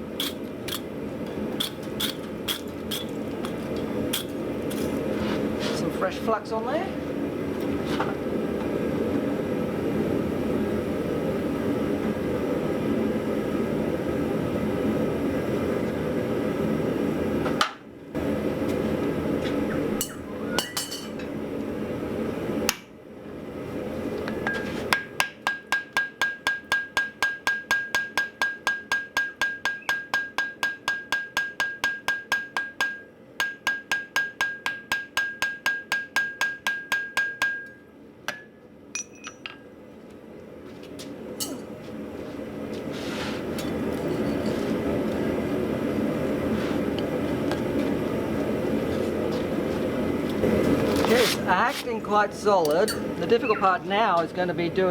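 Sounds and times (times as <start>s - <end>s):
hammer striking steel on anvil: 20.0s - 21.3s, 24.4s - 39.6s
steady metallic ring: 20.0s - 21.3s, 24.4s - 39.7s, 52.7s - 53.2s.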